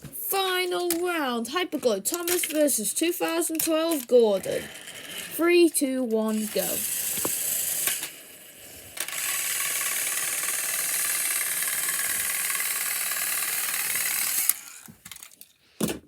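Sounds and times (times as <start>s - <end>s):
toy train motors whirring: 0.2s - 15.6s.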